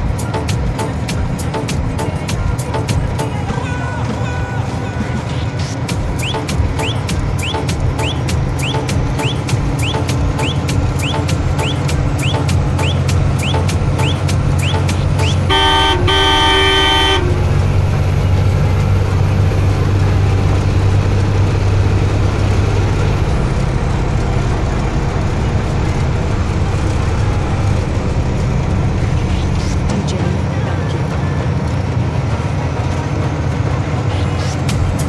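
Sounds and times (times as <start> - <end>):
truck engine drone and road noise: 0.0 - 35.0
short rising chirps: 6.1 - 15.5
truck horn: 6.1 - 18.5.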